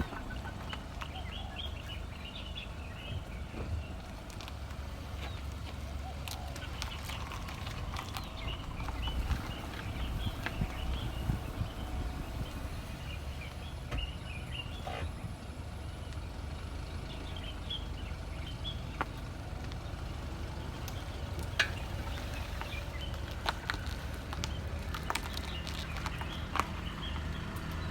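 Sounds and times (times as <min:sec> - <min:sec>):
road rumble: 0:00.0 - 0:27.9.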